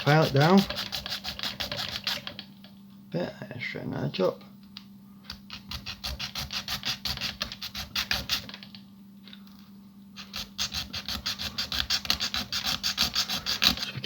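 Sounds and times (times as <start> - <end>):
hand file rasping plastic: 0.0 - 2.4, 10.2 - 14.0.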